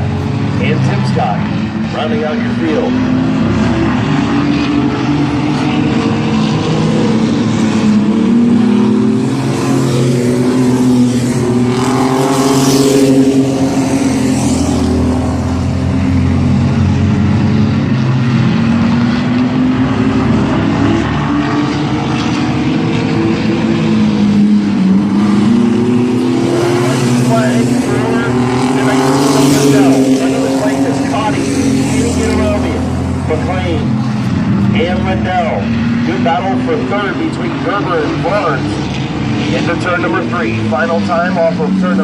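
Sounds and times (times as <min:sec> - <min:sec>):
mini truck race engines: 0:00.0 - 0:42.0.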